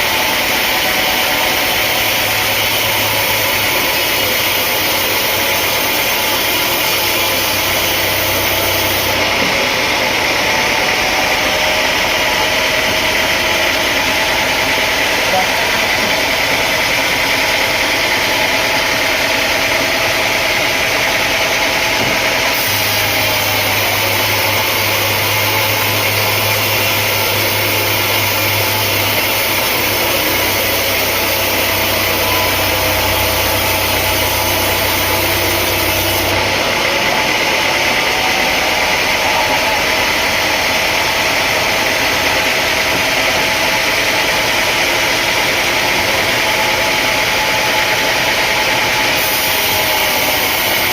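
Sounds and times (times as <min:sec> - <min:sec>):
sawmill machinery drone: 0:00.0 - 0:50.9
deeper hum: 0:22.0 - 0:48.1.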